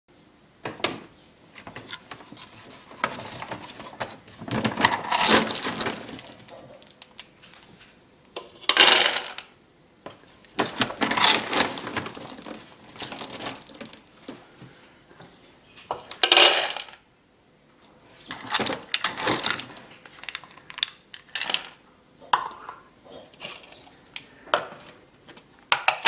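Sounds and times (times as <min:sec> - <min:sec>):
dry dog food rattling into bowls: 0:01.6 - 0:07.6, 0:08.7 - 0:09.5, 0:10.6 - 0:14.2, 0:16.1 - 0:17.0, 0:18.3 - 0:21.8.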